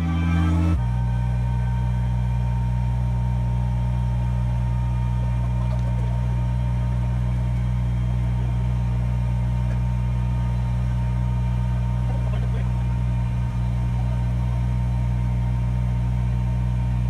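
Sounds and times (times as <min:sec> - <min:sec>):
faint steady whine: 0:00.0 - 0:17.0
tractor diesel engine idling: 0:00.0 - 0:17.0.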